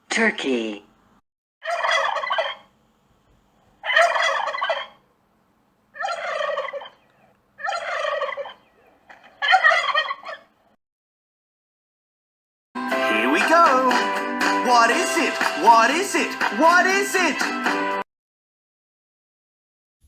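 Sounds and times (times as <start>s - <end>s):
turkey gobbling: 1.6s - 2.7s, 3.8s - 5.1s, 5.9s - 10.6s.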